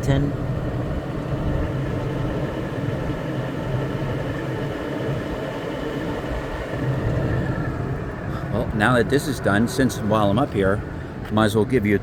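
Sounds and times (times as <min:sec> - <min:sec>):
exhaust fan running: 0:00.0 - 0:12.0.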